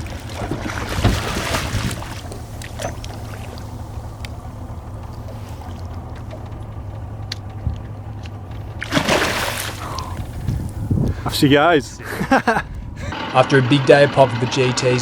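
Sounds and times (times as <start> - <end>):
boat motor idling: 0.0 - 15.0
light clicks and knocks: 2.2 - 8.9.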